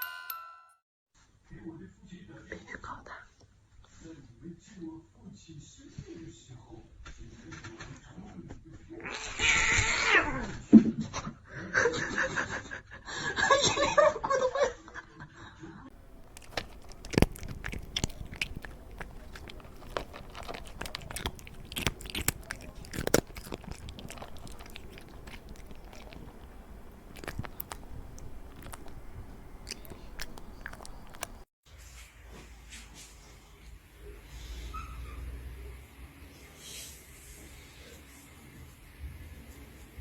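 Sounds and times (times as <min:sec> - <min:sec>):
irregular crunching clicks: 0:15.9 - 0:31.4.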